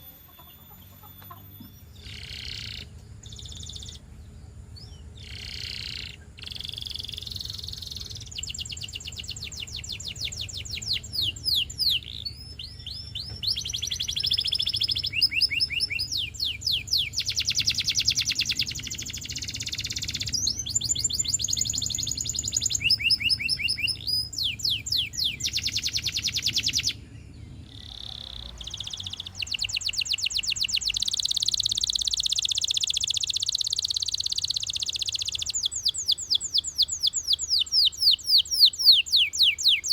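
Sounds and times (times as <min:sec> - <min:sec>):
canary singing trills: 0:00.0 - 0:39.9
low steady hum: 0:00.0 - 0:39.9.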